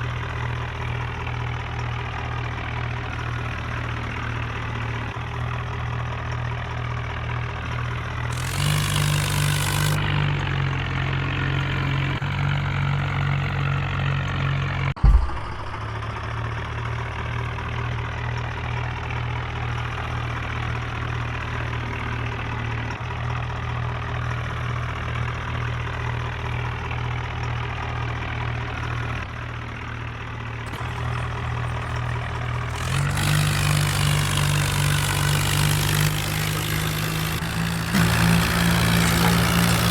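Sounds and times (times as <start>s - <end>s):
tractor engine idling and revving: 0.0s - 39.9s
sharp thump: 15.0s - 16.6s.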